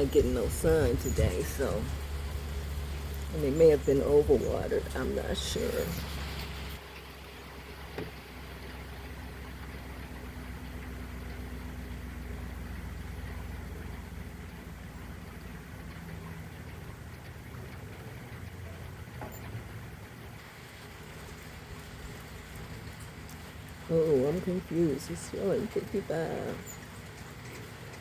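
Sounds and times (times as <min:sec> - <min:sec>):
light rain hiss: 0:00.0 - 0:28.0
low motor hum: 0:00.0 - 0:28.0.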